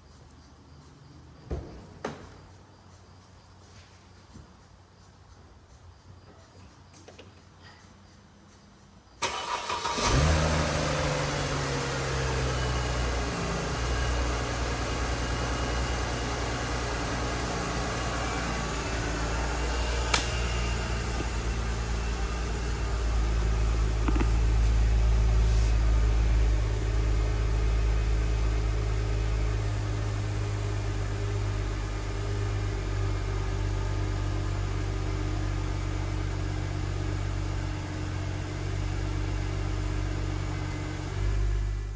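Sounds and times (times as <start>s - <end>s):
car engine idling: 9.2s - 41.9s.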